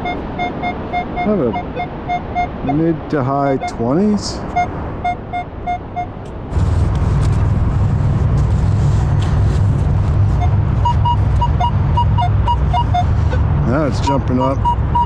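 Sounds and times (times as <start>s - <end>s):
metal detector beeps: 0.0s - 2.8s, 3.6s - 3.8s, 4.5s - 6.2s, 10.4s - 13.4s, 14.0s - 15.0s
loud low rumble: 6.4s - 13.8s.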